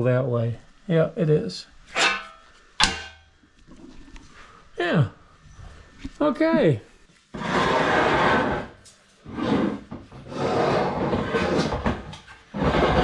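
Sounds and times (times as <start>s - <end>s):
scraping: 1.9s - 4.3s, 7.3s - 13.0s.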